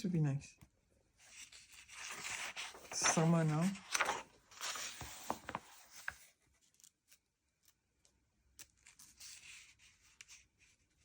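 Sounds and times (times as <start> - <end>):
magazine pages rustling: 1.3 - 6.9.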